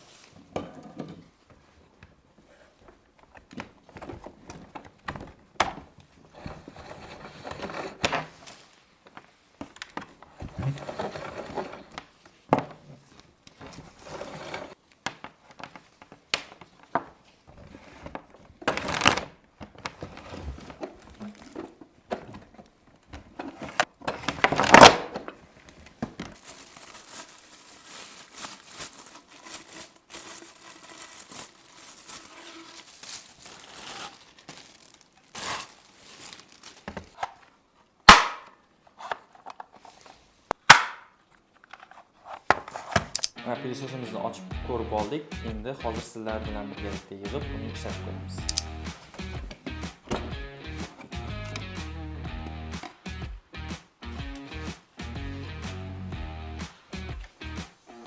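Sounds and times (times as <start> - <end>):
cardboard rustling: 2.9 - 37.6, 41.6 - 43.2
plastic wrapping crinkling: 13.0 - 37.5.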